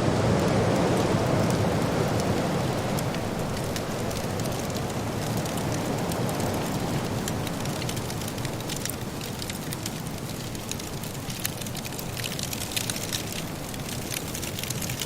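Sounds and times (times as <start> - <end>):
low rush like wind: 0.0 - 10.9
wood fire crackling: 0.0 - 15.0.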